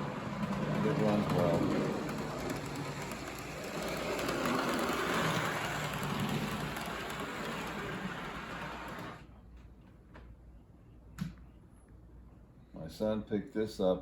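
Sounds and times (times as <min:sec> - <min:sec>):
model train motor and wheel rumble: 0:00.0 - 0:09.3.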